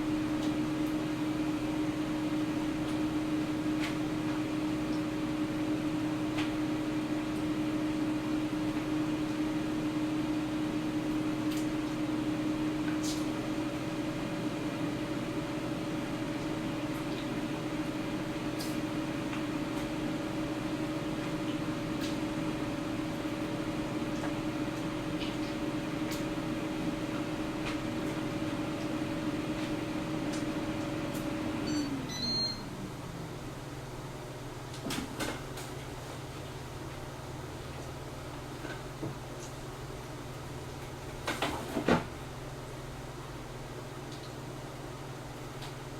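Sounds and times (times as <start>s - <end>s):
fan winding down: 0.0s - 35.3s
air fryer fan humming: 0.0s - 45.9s
short high beep: 31.7s - 32.6s.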